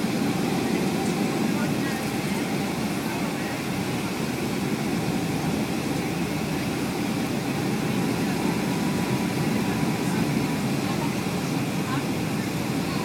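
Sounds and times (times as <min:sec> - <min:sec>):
aircraft cabin engine rumble: 0:00.0 - 0:13.0.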